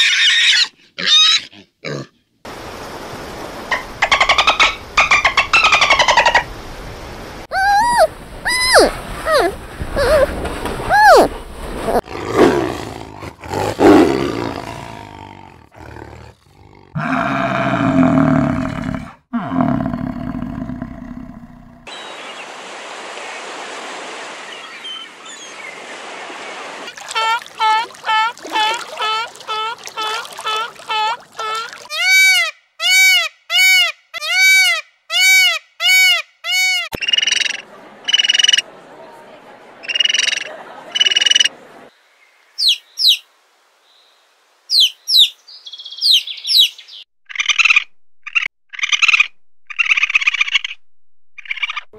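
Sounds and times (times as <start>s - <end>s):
peafowl calling: 3.7s - 6.5s, 7.5s - 10.3s, 10.9s - 11.3s, 27.0s - 38.6s, 42.6s - 43.2s, 44.7s - 50.8s, 51.4s - 51.9s
dolphin rasping calls: 7.5s - 12.0s, 27.0s - 38.6s
tiger roaring: 12.0s - 21.9s.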